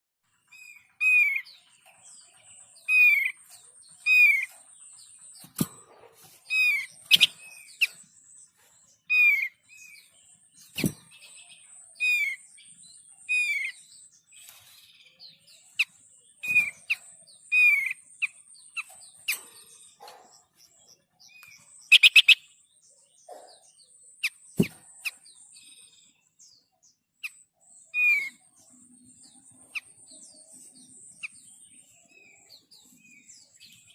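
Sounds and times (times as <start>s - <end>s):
bird chirping down-slurred notes: 0.5s - 26.7s.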